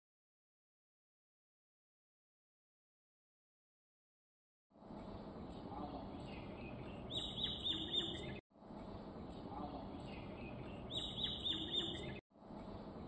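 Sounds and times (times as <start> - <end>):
outdoor background noise: 4.7 - 13.0
small bird chirping: 5.0 - 8.4, 9.2 - 12.2.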